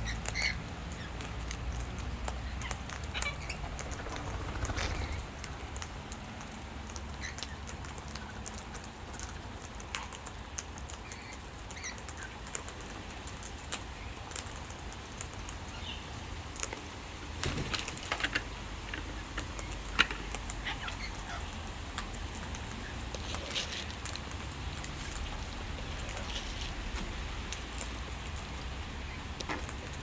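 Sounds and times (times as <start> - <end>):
beak clicks and taps: 17.9 - 28.7, 29.4 - 30.0.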